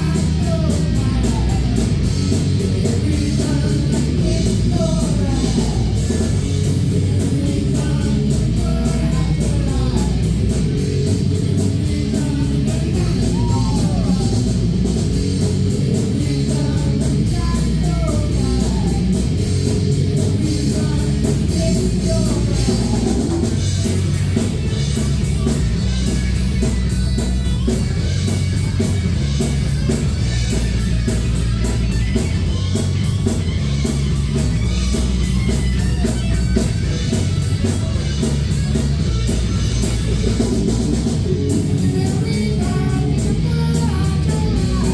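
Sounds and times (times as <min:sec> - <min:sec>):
person singing: 0:00.0 - 0:23.6, 0:40.2 - 0:44.9
drum kit: 0:00.0 - 0:44.9
electric guitar: 0:00.0 - 0:44.9.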